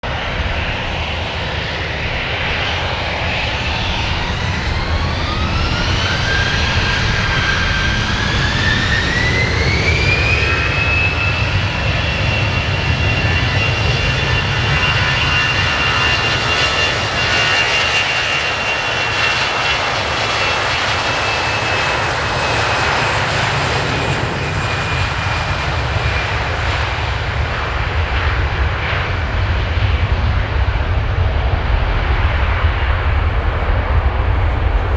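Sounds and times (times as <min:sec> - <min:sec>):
jet engines spooling up: 0:00.0 - 0:34.9
loud even rumble: 0:28.8 - 0:34.9.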